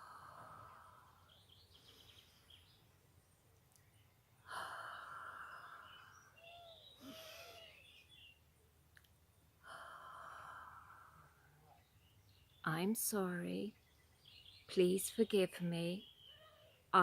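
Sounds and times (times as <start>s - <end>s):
woman breathing deeply: 0.0s - 2.6s, 4.4s - 7.8s, 9.6s - 11.8s
bird chirping: 1.1s - 4.4s, 5.0s - 9.6s, 11.6s - 17.0s.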